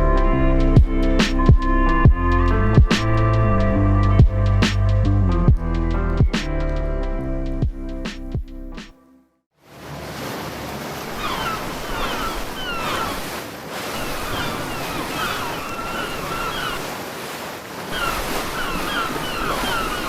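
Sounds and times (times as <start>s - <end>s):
sea waves washing: 9.6s - 20.0s
squeaky gliding calls: 11.1s - 17.0s, 17.9s - 20.0s.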